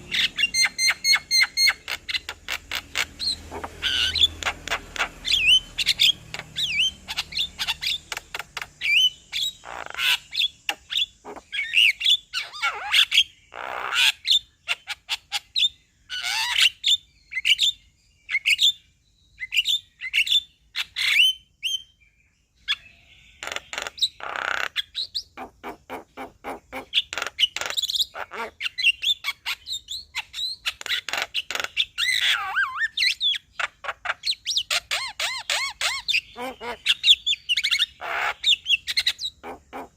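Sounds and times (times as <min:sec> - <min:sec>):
harsh rasping squawks: 0:00.0 - 0:15.5, 0:23.4 - 0:39.9.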